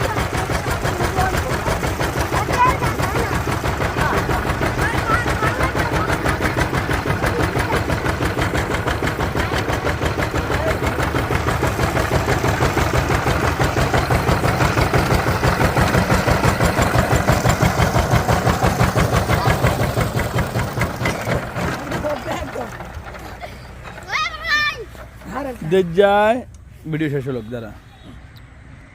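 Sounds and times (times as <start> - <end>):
diesel engine chugging: 0.0 - 28.9.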